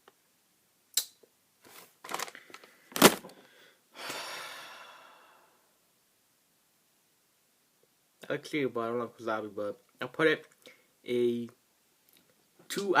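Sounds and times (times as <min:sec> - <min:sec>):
person breathing in puffs: 0:02.3 - 0:05.6
breathy exhale: 0:03.4 - 0:05.7.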